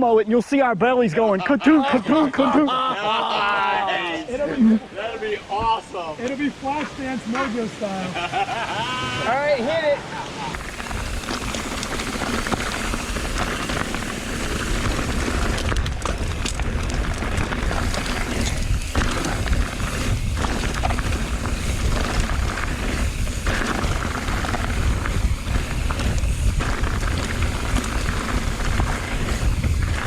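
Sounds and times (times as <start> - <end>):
bike tyres crunching on rock: 10.5 - 30.0
wind rumbling on microphone: 10.5 - 30.0.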